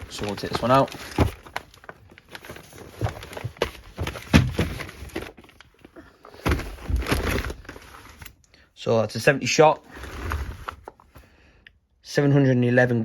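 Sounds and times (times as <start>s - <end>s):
rustling cardboard and wrapping: 0.0s - 8.4s, 9.7s - 11.1s.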